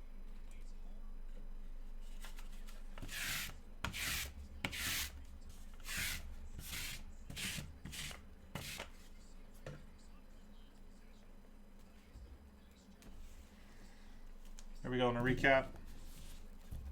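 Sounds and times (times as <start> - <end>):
trading cards swishing: 2.2 - 5.1.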